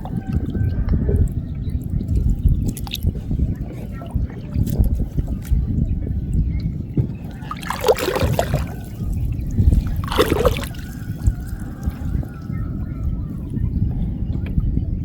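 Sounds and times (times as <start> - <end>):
water splashing from hauled net: 7.3 - 12.2.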